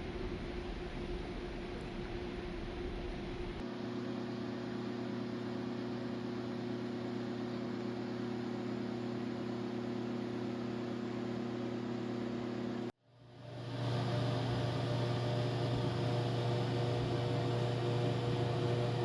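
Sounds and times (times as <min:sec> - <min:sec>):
electric motor hum: 0:04.2 - 0:19.0.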